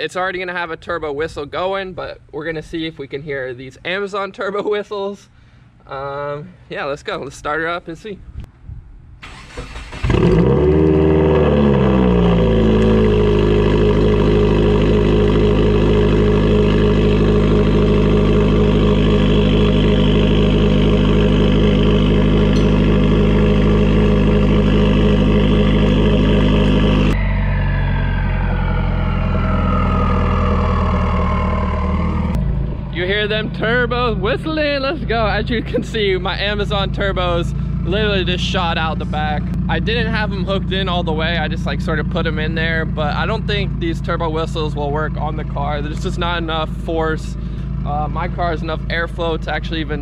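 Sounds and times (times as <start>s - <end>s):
car engine starting and idling: 9.2s - 50.0s.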